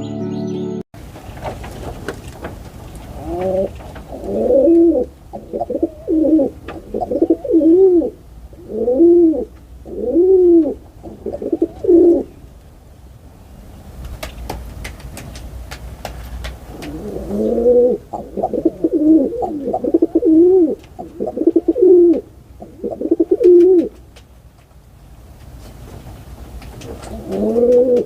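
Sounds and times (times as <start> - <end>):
dove cooing: 3.2 - 12.4, 16.7 - 24.0, 26.9 - 28.0.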